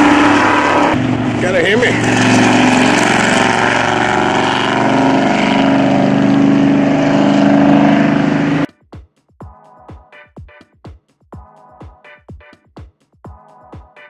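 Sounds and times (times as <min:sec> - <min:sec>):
car engines on race circuit: 0:00.0 - 0:08.7
electronic music with sharp beats: 0:08.7 - 0:14.0.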